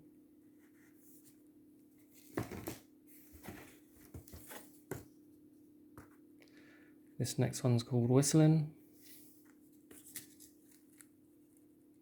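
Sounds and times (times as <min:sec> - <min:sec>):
faint steady hum: 0:00.0 - 0:12.0
cardboard rustling: 0:02.0 - 0:05.1.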